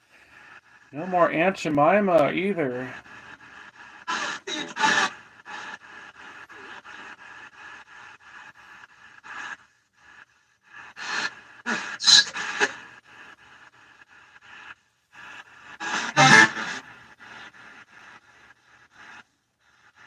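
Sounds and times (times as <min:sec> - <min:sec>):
chopped radio static: 0:16.2 - 0:16.8
voice-like radio snatches: 0:16.2 - 0:16.8.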